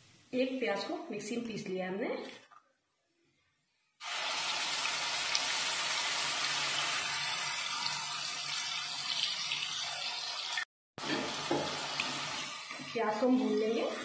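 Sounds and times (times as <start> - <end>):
onion paste sizzling in oil: 4.0 - 14.0.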